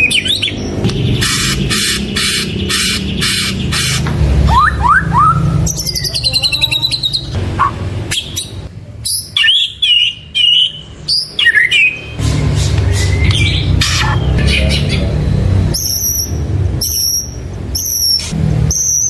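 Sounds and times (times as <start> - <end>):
bird singing: 0.0 - 19.0.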